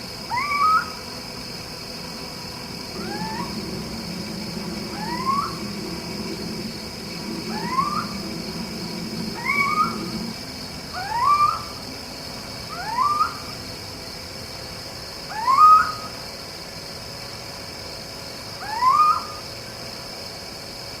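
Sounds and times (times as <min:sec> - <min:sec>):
faint high hiss: 0:02.6 - 0:12.4.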